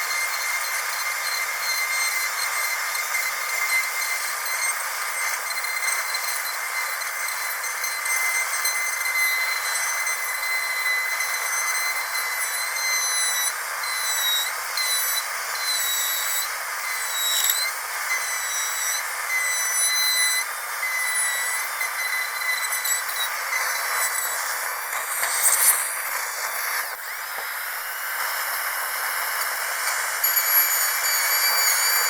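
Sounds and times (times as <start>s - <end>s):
dental drill whining: 0.0s - 32.0s
hiss: 10.8s - 32.0s.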